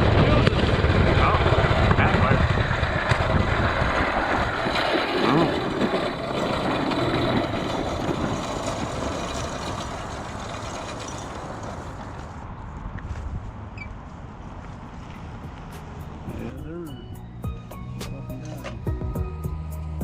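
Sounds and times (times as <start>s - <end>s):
minibike engine running: 0.0s - 12.4s
wind rush on microphone: 0.0s - 16.4s.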